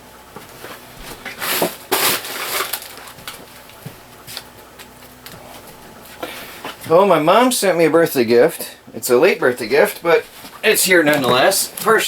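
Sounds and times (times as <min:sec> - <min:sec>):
rustling and handling: 0:00.3 - 0:07.0, 0:10.2 - 0:12.0.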